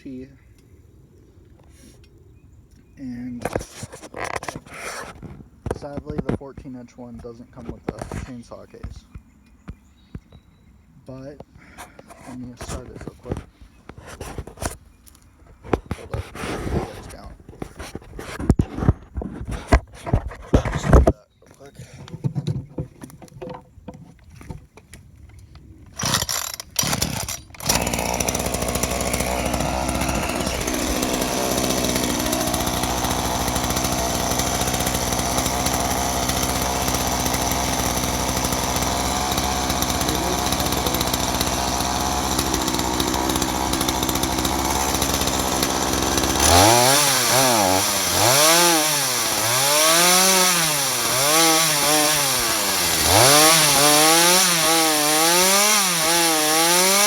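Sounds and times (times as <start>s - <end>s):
chainsaw pull-start bursts: 25.9s - 57.0s
chainsaw engine idling: 26.0s - 57.0s
chainsaw engine revving: 26.0s - 57.0s.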